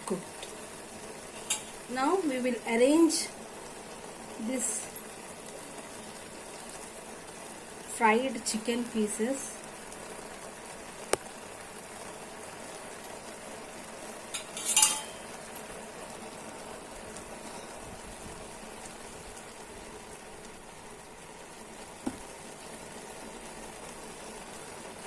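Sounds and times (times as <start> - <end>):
rice steaming hiss: 0.0 - 25.0
metallic clink: 14.4 - 15.3
pot and utensils knocking: 14.4 - 15.3.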